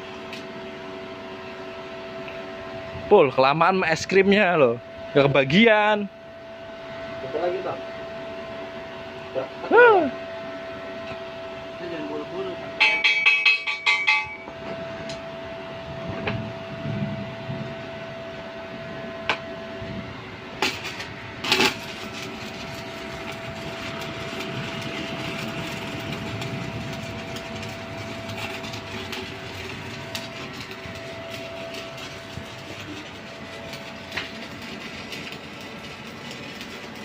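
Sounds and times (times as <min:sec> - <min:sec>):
thin steady whine: 0:00.0 - 0:37.0
welding arc crackling: 0:20.6 - 0:37.0.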